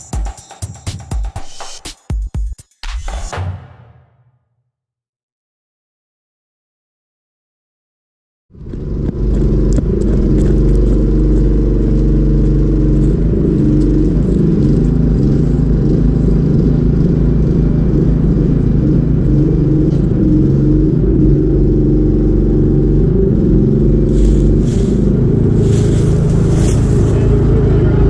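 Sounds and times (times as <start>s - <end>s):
engine running steadily: 8.5s - 28.0s.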